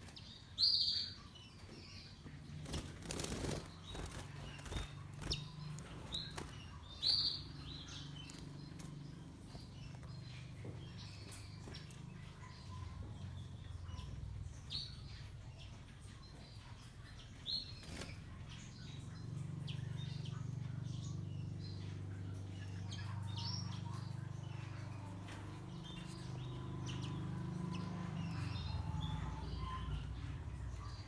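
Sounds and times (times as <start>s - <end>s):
canaries chirping: 0.0s - 31.0s
low steady hum: 0.0s - 31.0s
wing flutters: 2.4s - 10.1s.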